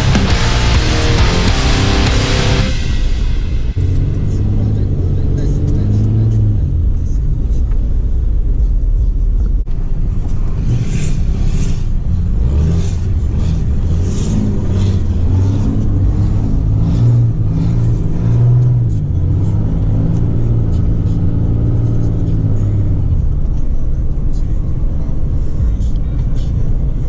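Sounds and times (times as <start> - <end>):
diesel engine revving: 0.0 - 7.2.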